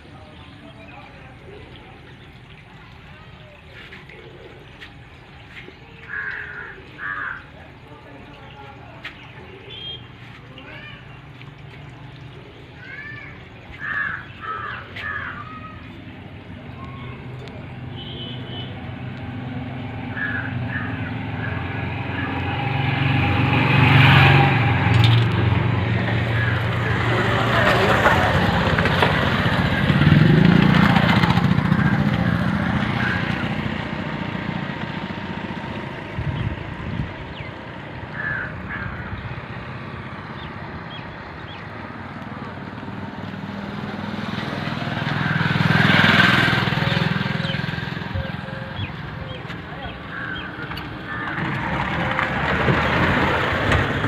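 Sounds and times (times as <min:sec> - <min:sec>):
combine harvester engine passing: 0:18.8 - 0:54.0.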